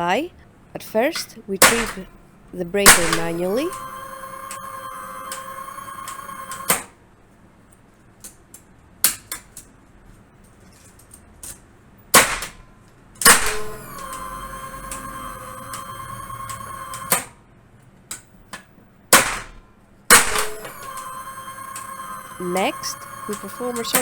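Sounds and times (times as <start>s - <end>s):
steady electronic tone: 2.0s - 6.9s, 13.3s - 17.3s, 20.1s - 24.0s.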